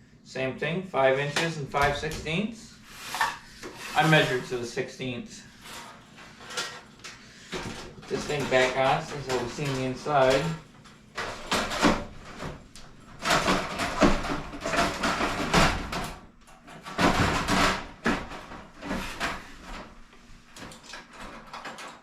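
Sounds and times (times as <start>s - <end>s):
metal casing scraping and rattling: 2.9s - 4.6s, 5.5s - 20.0s.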